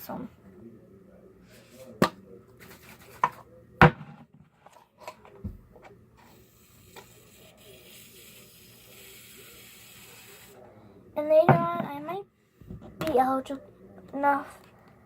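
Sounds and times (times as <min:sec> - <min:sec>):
aerosol can spraying hiss: 0:06.3 - 0:10.6.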